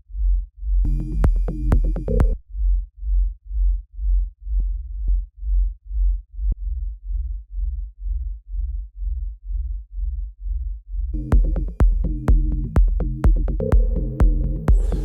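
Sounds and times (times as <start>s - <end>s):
kick and sub-bass thump: 0.2s - 3.2s, 9.1s - 15.0s.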